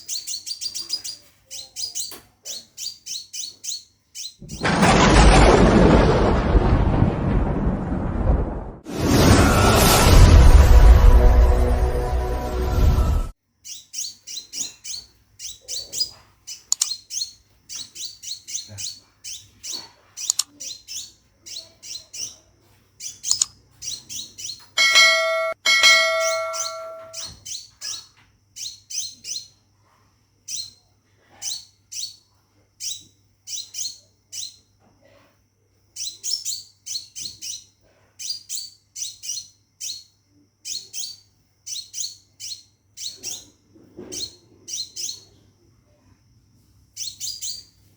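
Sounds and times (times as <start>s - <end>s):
bird song with high falling notes: 24.8s - 27.4s.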